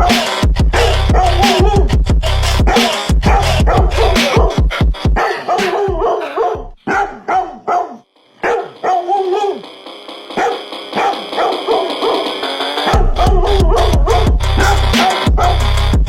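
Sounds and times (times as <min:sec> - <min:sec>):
meme music with bass beat: 0:00.0 - 0:06.8, 0:08.4 - 0:16.0
short dog-like barks: 0:05.2 - 0:09.5.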